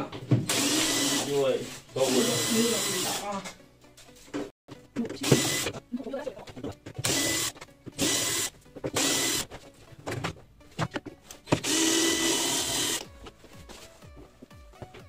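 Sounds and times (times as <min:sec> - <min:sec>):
electric impact wrench bursts: 0:00.5 - 0:01.3, 0:02.0 - 0:03.2, 0:07.0 - 0:09.4, 0:11.6 - 0:13.0.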